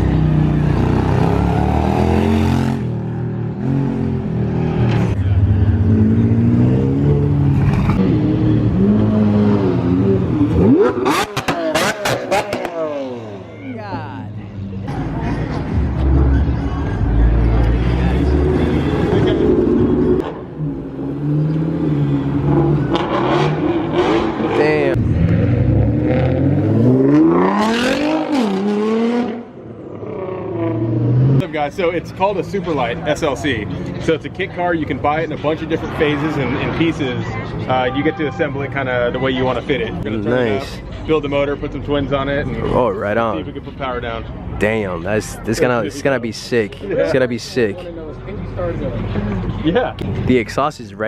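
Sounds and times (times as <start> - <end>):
car engine revving: 0.0 - 13.6, 14.5 - 31.4.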